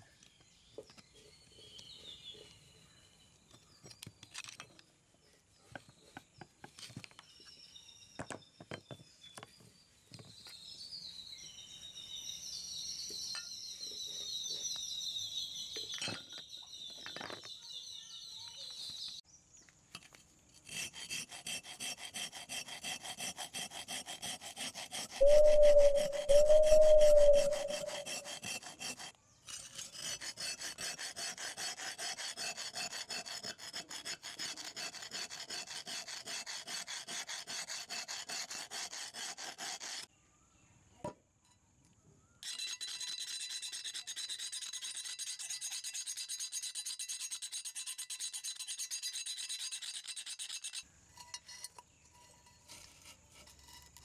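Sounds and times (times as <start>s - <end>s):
file rasping on cast iron: 20.5s - 40.1s, 42.4s - 54.0s.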